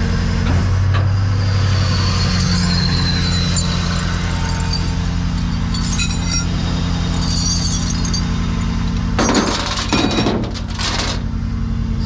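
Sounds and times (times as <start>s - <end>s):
truck engine idling: 1.1s - 12.0s
metal chains rattling: 2.0s - 11.3s.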